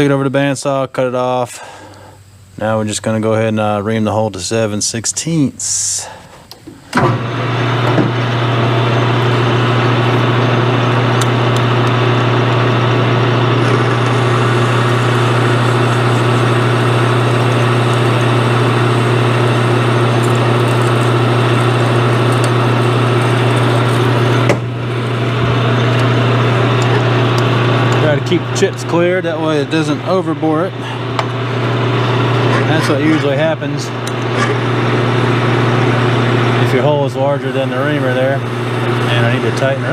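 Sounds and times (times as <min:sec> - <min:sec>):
machine tool cutting metal: 0:13.6 - 0:24.6.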